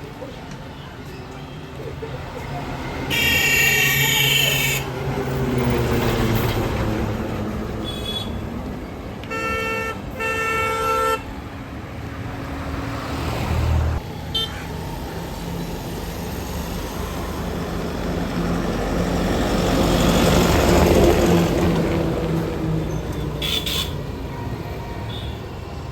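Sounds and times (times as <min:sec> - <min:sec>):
road traffic: 0:00.0 - 0:25.9
vehicle horn: 0:03.1 - 0:04.9, 0:07.8 - 0:08.4, 0:09.3 - 0:11.3, 0:23.4 - 0:24.1, 0:24.9 - 0:25.5.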